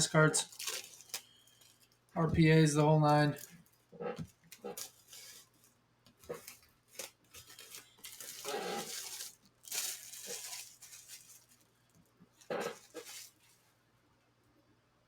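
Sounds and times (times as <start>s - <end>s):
packaging rustling and tearing: 0.0s - 2.2s, 3.1s - 11.7s, 12.3s - 13.6s.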